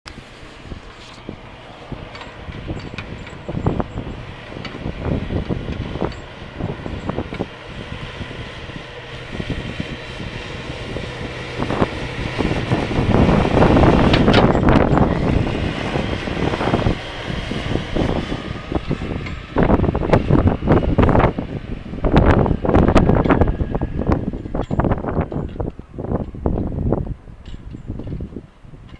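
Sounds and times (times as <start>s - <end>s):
rushing noise of plowing snow: 0.1s - 28.9s
snowplow engine hum: 0.1s - 28.9s
knocks and rattles: 24.3s - 26.7s, 27.4s - 28.9s.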